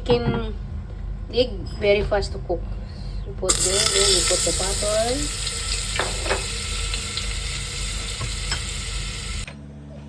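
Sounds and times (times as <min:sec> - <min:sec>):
butter sizzling in hot oil: 0:03.5 - 0:09.5.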